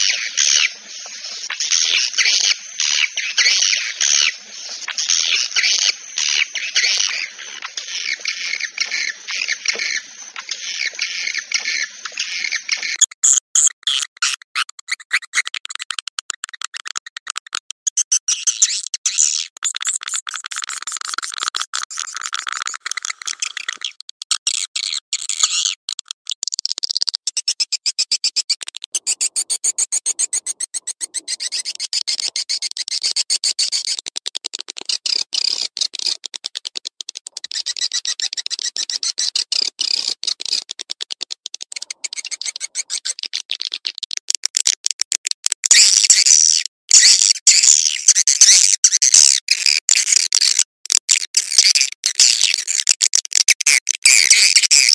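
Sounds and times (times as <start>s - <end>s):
high-pitched bird chirping: 0.0s - 20.2s, 27.0s - 34.0s, 41.8s - 43.2s.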